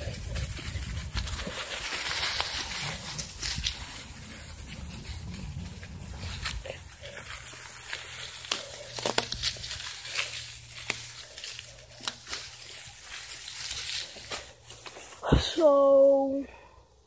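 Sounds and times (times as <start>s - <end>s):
twigs and leaves crackling under tyres: 0.0s - 16.4s.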